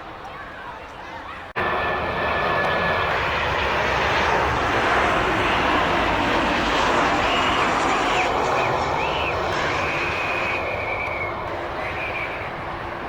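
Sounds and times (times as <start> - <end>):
jet engines running: 1.5 - 13.0.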